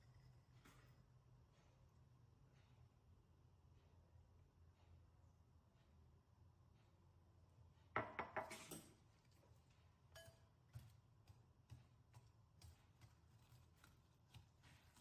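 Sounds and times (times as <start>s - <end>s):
kitchenware clinking on glass bowl: 10.1s - 10.5s.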